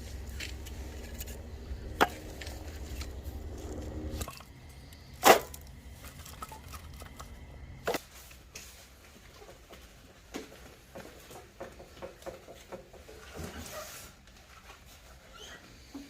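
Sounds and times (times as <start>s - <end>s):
low hum: 0.0s - 8.0s.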